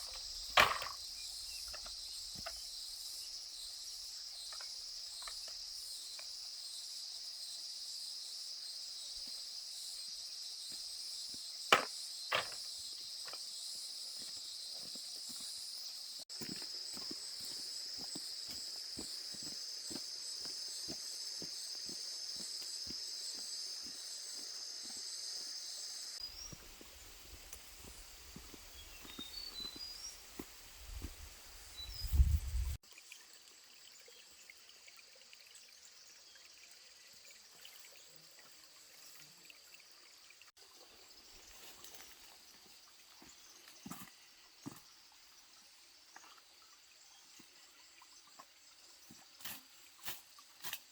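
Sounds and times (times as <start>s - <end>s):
high insect drone: 0.0s - 32.8s.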